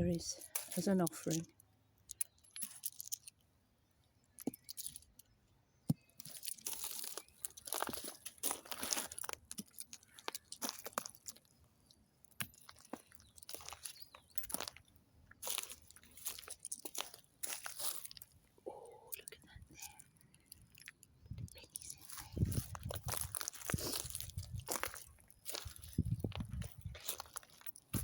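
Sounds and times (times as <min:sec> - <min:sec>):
crunching and rustling: 0:05.9 - 0:11.6, 0:12.3 - 0:18.4, 0:19.7 - 0:28.0.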